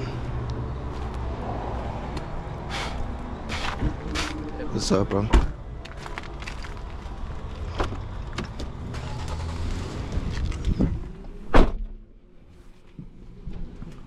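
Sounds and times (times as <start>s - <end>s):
loud thump: 11.5s - 11.9s.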